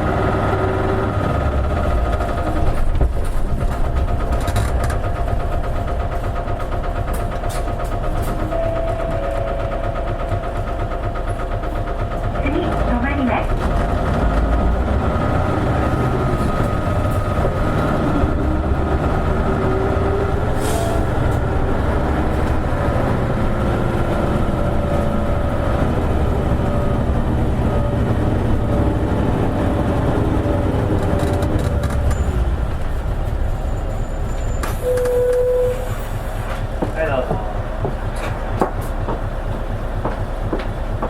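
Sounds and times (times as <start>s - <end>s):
bus diesel engine running: 0.0s - 41.0s
air brake hisses: 20.6s - 21.0s.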